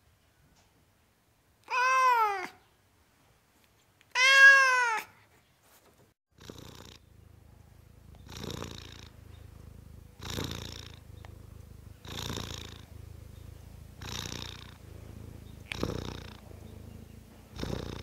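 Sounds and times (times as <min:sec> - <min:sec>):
cat purring: 0:06.4 - 0:18.0.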